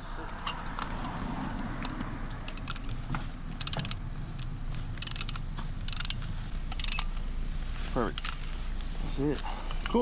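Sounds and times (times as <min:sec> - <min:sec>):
ratchet wrench clicking: 0:00.3 - 0:07.2.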